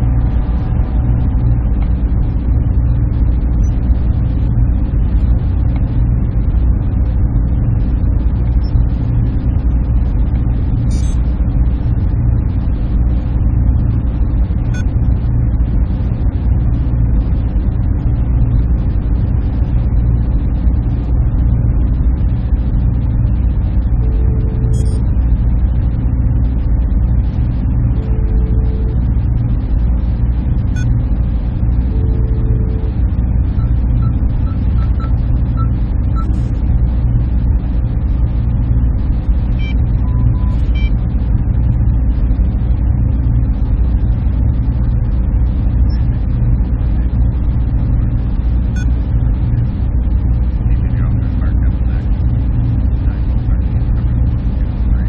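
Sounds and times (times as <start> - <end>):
server cooling fans humming: 0.0 - 55.0
faint short tone: 24.0 - 25.0, 27.9 - 29.0, 30.7 - 31.0, 33.6 - 36.5, 39.6 - 41.0.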